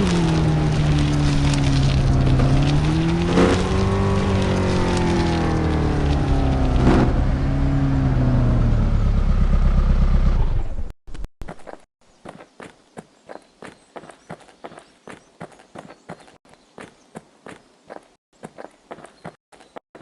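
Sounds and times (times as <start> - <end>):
truck engine running: 0.0 - 10.9.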